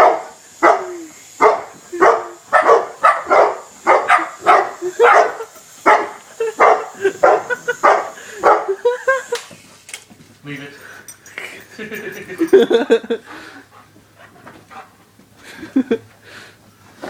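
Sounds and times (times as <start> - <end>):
dog barking excitedly: 0.0 - 8.8.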